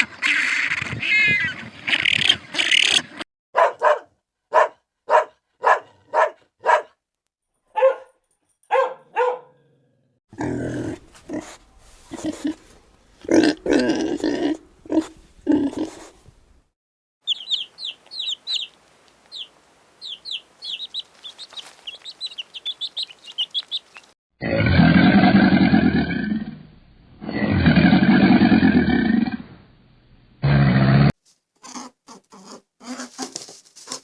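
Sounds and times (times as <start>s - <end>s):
dog growling: 3.6s - 6.9s
rapid high chirps: 17.2s - 24.1s.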